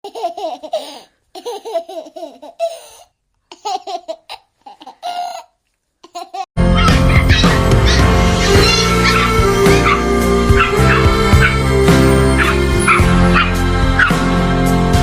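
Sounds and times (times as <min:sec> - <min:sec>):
baby laughing: 0:00.0 - 0:10.0.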